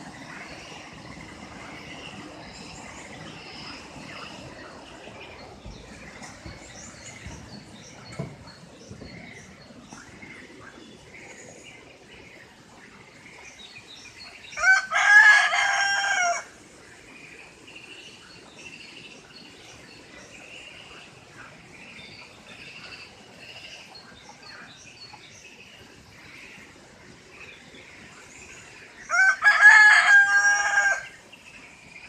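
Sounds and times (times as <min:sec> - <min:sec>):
small birds chirping: 0:00.0 - 0:32.0
rooster crowing: 0:14.6 - 0:16.5, 0:29.1 - 0:31.2.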